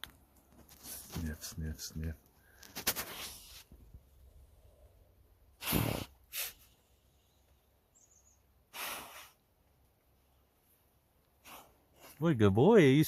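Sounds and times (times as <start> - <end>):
dog sniffing and snorting: 5.6 - 6.7, 8.7 - 9.4, 11.4 - 12.2.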